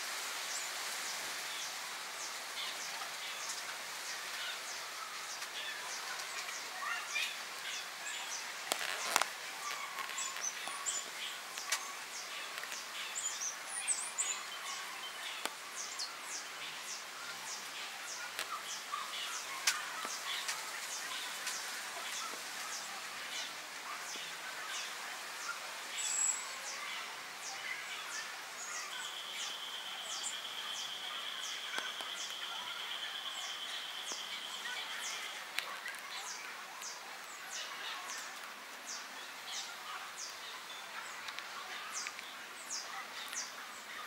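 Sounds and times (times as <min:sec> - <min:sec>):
small birds chirping: 0:00.4 - 0:44.0.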